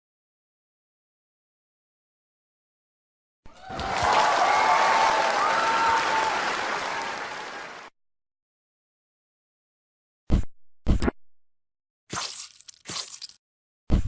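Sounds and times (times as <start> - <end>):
crowd applause and cheering: 3.5 - 7.9.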